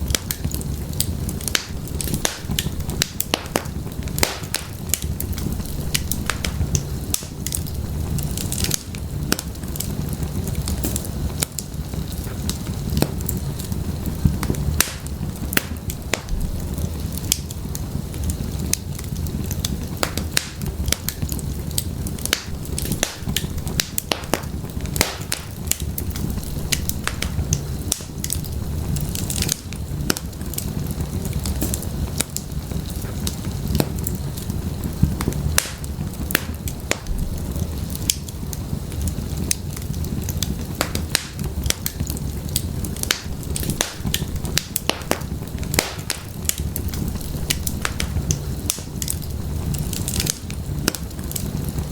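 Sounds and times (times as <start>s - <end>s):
low rumble of flames: 0.0s - 51.9s
wood fire crackling and popping: 0.0s - 51.9s.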